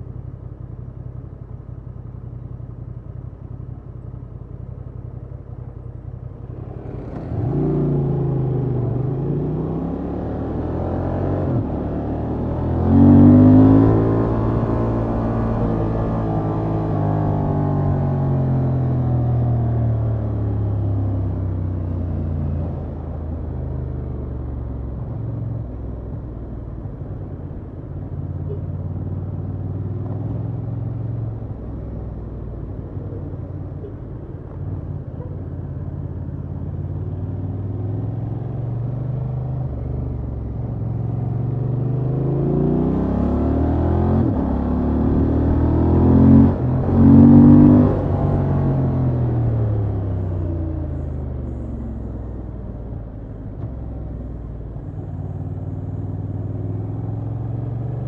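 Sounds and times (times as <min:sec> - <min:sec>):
motorcycle engine revving: 0:06.4 - 0:23.6, 0:34.8 - 0:58.0.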